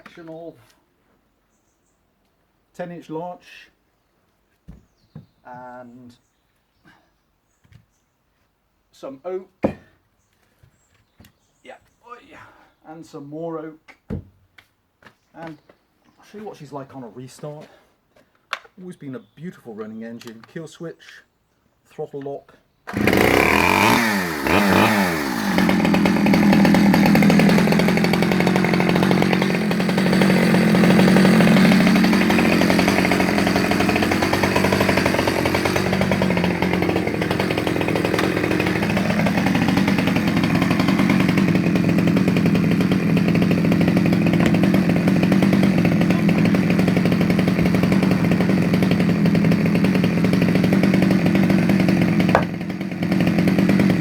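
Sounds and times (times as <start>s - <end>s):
chainsaw engine running: 22.9s - 54.0s.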